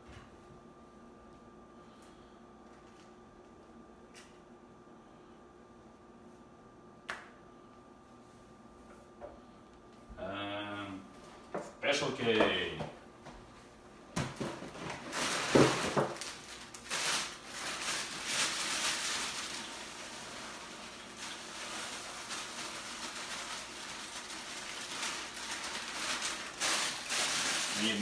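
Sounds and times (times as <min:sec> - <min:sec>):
plastic bag crinkling: 0:14.2 - 0:28.0.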